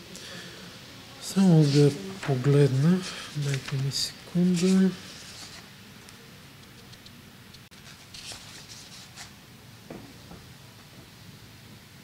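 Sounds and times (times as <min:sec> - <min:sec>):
soft handling noises: 0:01.3 - 0:07.1.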